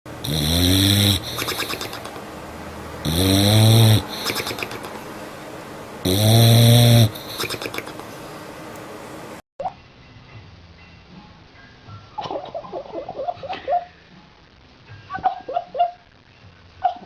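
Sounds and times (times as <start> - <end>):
dog snoring: 0.1 - 2.3, 3.0 - 5.1, 6.0 - 8.1.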